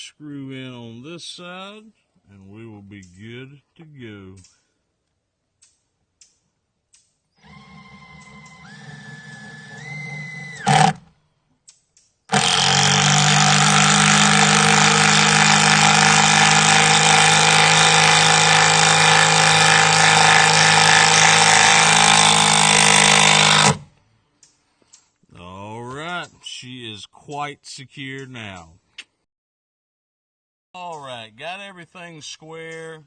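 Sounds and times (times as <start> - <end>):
power driver running loud: 7.4 - 11.1, 12.3 - 23.9
power driver whining: 7.4 - 11.2, 12.3 - 24.0.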